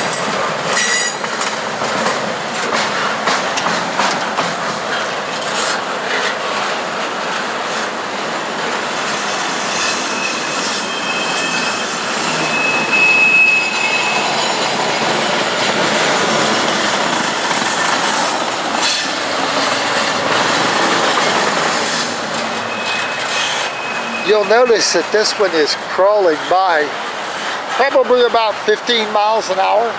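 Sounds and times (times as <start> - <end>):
train cars rolling on rails: 0.0 - 29.9
high wheel squeal: 0.1 - 1.3, 8.8 - 14.9, 16.6 - 19.3, 20.8 - 26.8.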